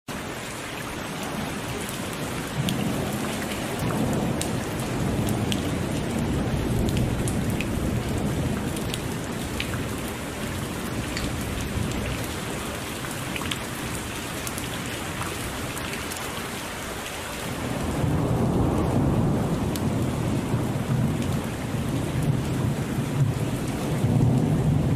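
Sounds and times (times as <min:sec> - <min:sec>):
heavy rain pouring: 0:00.1 - 0:24.9
low rolling thunder: 0:01.2 - 0:12.8, 0:17.5 - 0:24.9.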